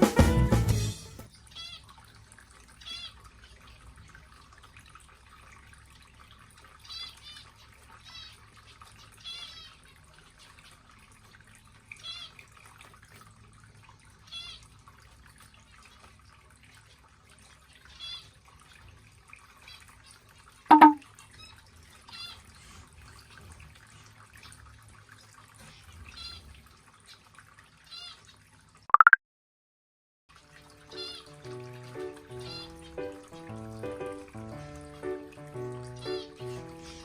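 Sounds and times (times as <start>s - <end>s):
small birds chirping: 31.9s - 37.0s.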